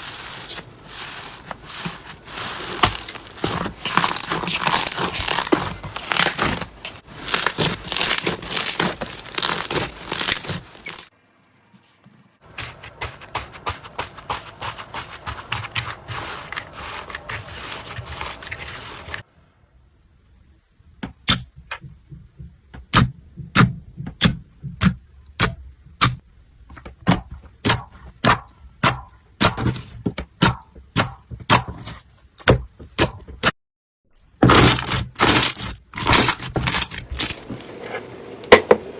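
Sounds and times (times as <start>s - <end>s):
slime crackling: 0.2s - 11.1s, 12.5s - 19.3s.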